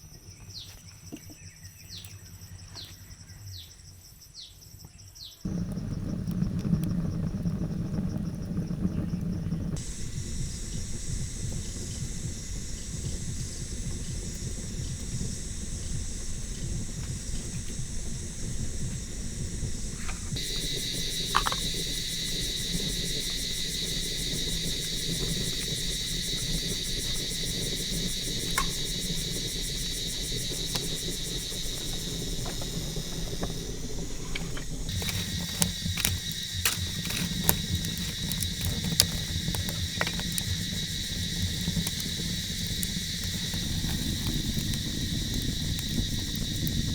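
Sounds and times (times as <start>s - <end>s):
insects trilling: 0.0s - 46.9s
low rumble of noise: 5.5s - 46.9s
sharp clicks and knocks: 30.6s - 46.8s.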